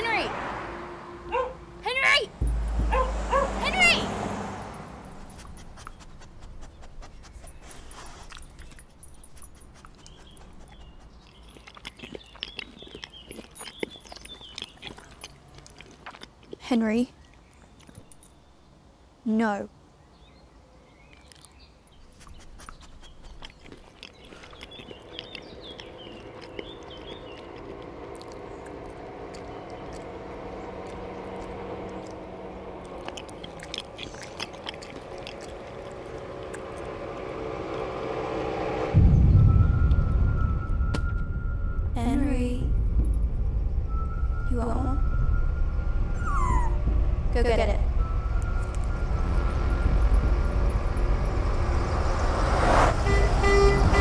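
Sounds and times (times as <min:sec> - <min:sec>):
dog yipping: 0:01.3 - 0:01.6, 0:02.9 - 0:03.6, 0:46.1 - 0:46.8
dog sniffing: 0:05.0 - 0:16.0, 0:22.0 - 0:28.4
chirps: 0:21.0 - 0:30.1.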